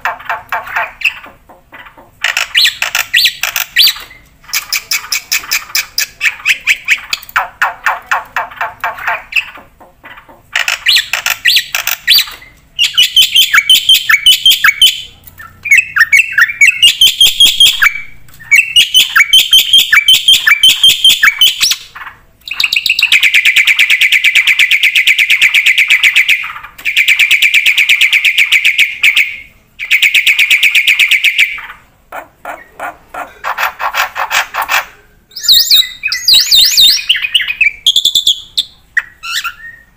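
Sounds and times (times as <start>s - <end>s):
starling singing: 0.0s - 31.8s, 32.4s - 39.9s.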